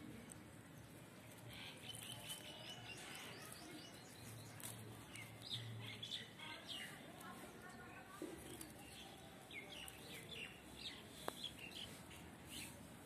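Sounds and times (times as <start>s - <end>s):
birds chirping and twittering: 0.3s - 12.8s.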